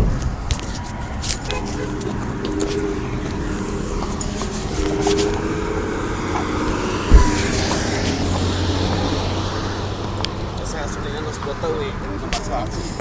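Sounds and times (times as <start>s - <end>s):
vehicle engine running: 0.0s - 12.1s
road traffic: 0.0s - 13.0s
low thump: 7.0s - 8.0s.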